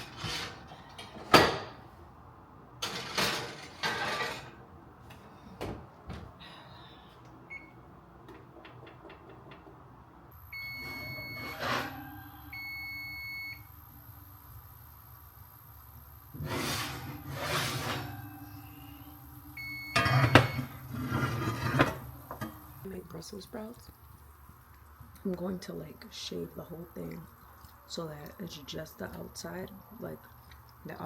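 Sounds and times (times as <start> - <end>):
long electronic beeps: 10.4 - 13.7.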